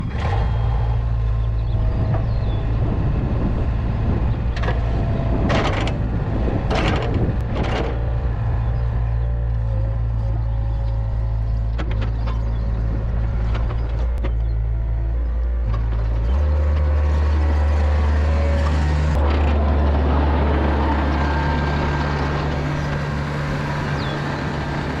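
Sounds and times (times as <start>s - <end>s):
diesel engine droning: 0.0s - 25.0s.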